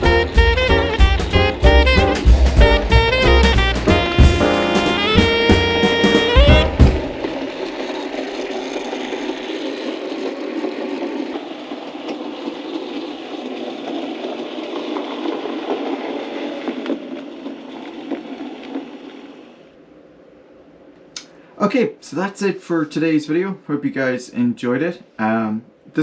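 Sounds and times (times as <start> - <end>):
model train whirring on rails: 7.4 - 19.7.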